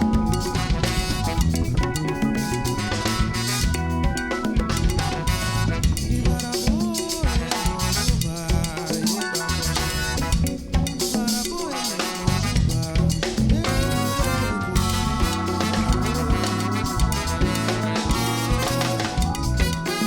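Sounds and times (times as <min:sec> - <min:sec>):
pitch-bending melody: 0:00.0 - 0:05.9, 0:13.7 - 0:20.0
bass: 0:00.0 - 0:20.0
drum kit and percussion: 0:00.0 - 0:20.0.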